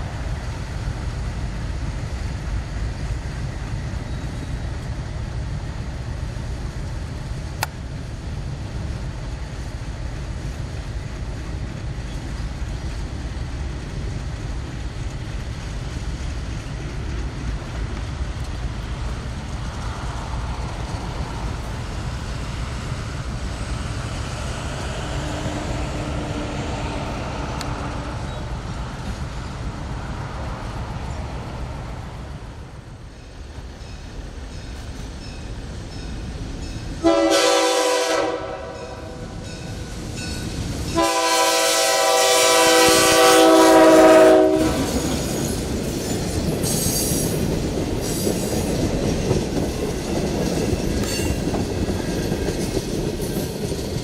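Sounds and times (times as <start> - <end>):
diesel locomotive rumble: 0.0 - 54.0
wheel and rail noise: 0.0 - 54.0
train air horn blasts: 37.0 - 39.4, 40.9 - 45.0.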